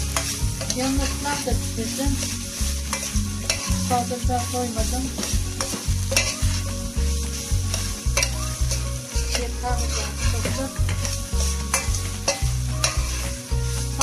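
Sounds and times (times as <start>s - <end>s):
food sizzling in oil: 0.0s - 14.0s
spoon scraping metal pot: 2.2s - 4.1s, 5.2s - 6.8s, 7.7s - 14.0s.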